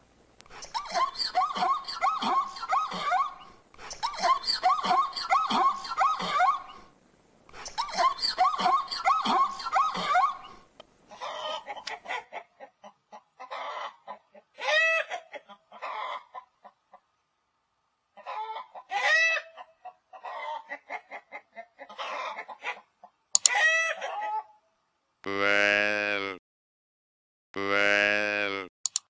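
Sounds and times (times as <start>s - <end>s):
hen squawking: 0.6s - 6.9s, 7.6s - 12.2s
chickens clucking: 7.5s - 17.1s, 18.1s - 24.5s.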